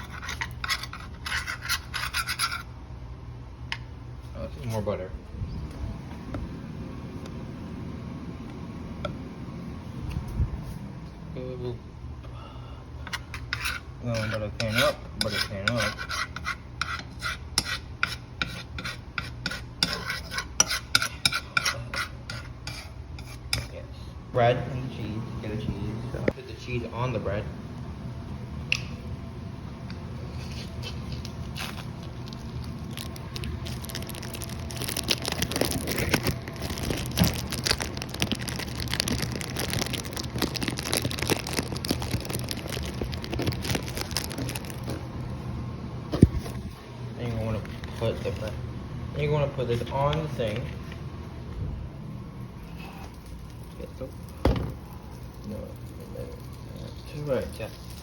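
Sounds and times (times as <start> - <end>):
knife scraping spreading butter: 0.0 - 2.7, 13.1 - 23.8, 30.2 - 31.9
steady low hum: 0.0 - 58.0
plastic wrapping crinkling: 31.3 - 45.3.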